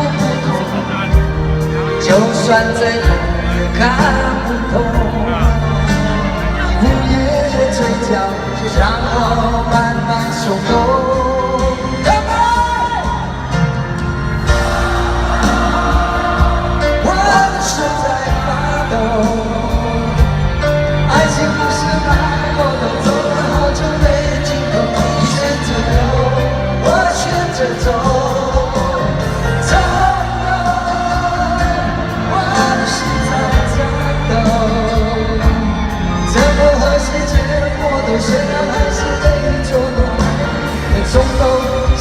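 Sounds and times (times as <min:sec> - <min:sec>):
live band playing: 0:00.0 - 0:42.0.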